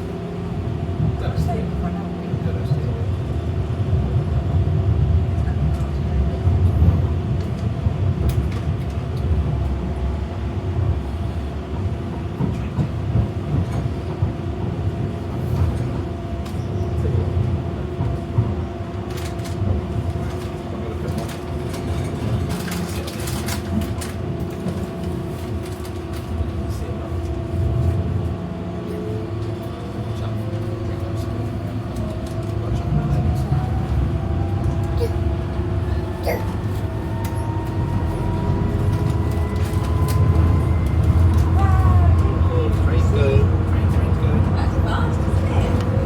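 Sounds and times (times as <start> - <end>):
train rumbling: 0.0 - 46.0
constant hum: 19.0 - 46.0.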